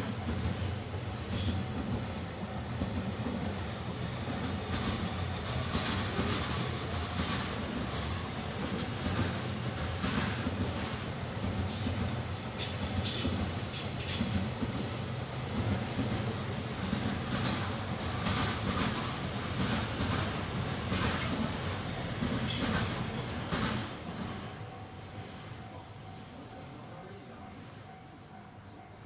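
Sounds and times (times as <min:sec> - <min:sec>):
train passing rumble: 0:00.0 - 0:29.0
wheels clacking over rail joints: 0:04.2 - 0:23.9.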